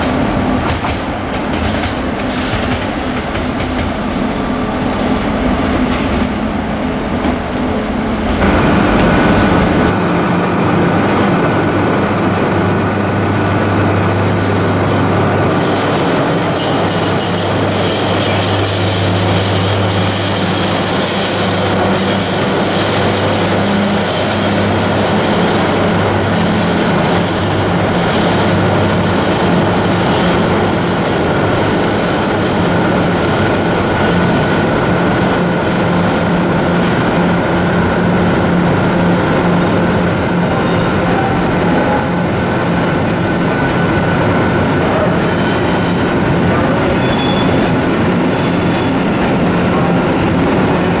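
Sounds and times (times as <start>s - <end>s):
train rolling past: 0.0s - 51.0s
low hum: 7.6s - 13.1s.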